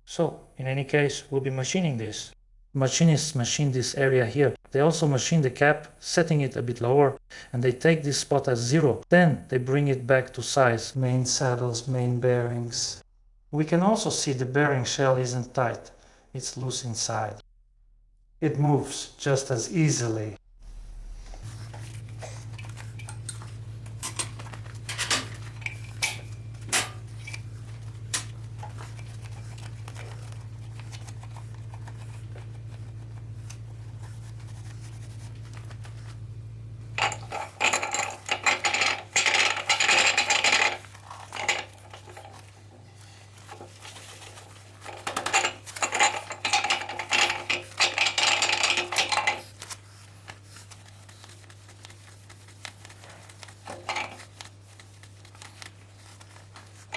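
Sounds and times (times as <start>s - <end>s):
steady low hum: 0.1s - 56.9s
metallic scraping and rattling: 23.9s - 29.7s, 37.0s - 42.5s, 43.5s - 49.5s.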